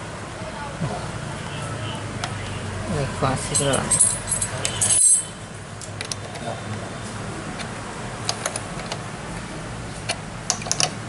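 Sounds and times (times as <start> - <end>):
parts clicking and tapping: 5.8 - 6.4, 7.6 - 11.0.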